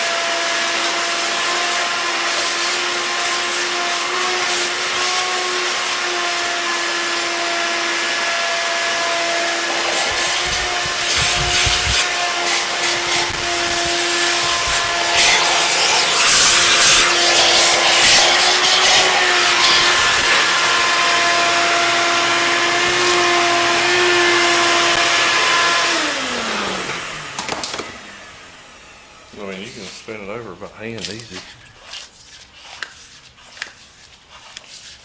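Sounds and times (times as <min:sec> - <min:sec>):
high-speed electric motor whining: 0:00.0 - 0:29.8
rushing air: 0:09.8 - 0:20.4.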